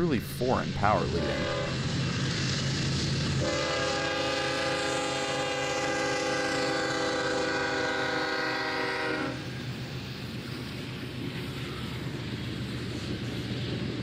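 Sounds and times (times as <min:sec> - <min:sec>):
passing train rumble: 0:00.0 - 0:14.0
locomotive air horn blast: 0:01.1 - 0:01.9, 0:03.4 - 0:09.5.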